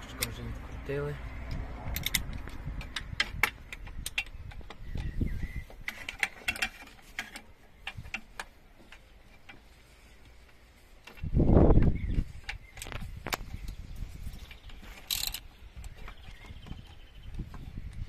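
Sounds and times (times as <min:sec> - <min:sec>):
wrench clicking on metal nuts: 0:01.9 - 0:05.2, 0:15.0 - 0:15.5.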